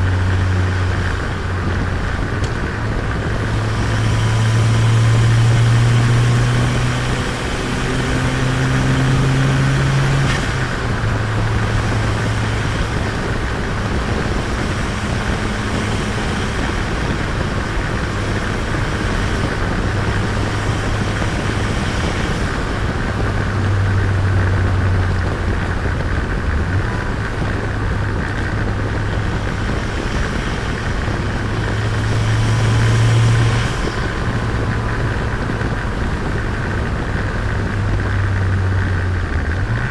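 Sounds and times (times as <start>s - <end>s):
car engine running: 0.0s - 39.9s
tyre and road noise: 0.0s - 39.9s.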